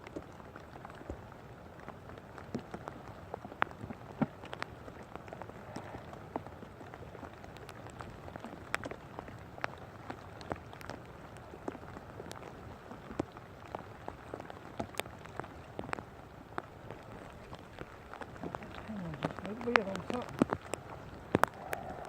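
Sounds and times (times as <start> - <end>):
rain falling: 0.0 - 22.0
drops ticking near microphone: 7.3 - 22.0.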